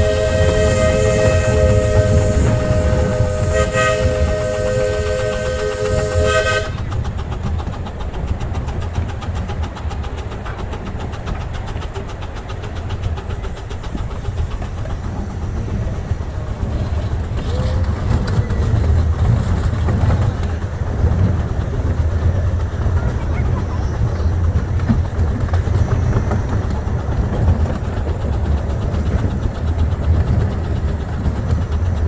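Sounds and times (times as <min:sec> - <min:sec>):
steam whistle blast: 0:00.0 - 0:06.8
train rumbling on track: 0:00.0 - 0:32.0.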